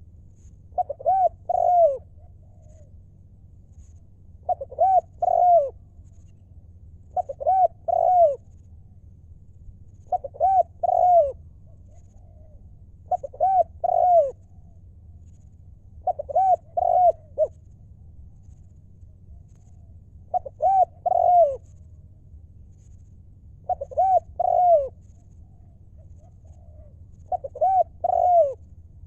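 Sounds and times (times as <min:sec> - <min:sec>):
dove cooing: 0:00.0 - 0:03.2, 0:03.9 - 0:06.3, 0:07.1 - 0:08.6, 0:10.0 - 0:14.8, 0:15.9 - 0:17.6, 0:19.4 - 0:21.8, 0:23.6 - 0:28.8.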